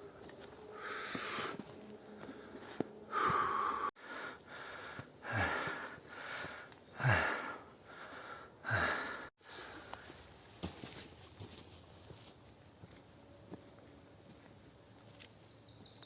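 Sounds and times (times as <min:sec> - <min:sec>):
man breathing hard: 0:00.7 - 0:10.2.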